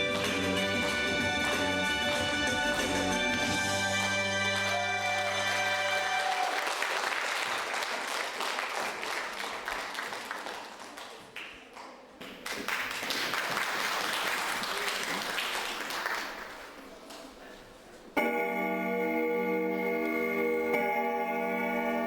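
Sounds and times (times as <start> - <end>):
backing track chord: 0.0 - 6.2, 18.2 - 22.0
audience applauding: 0.0 - 16.8.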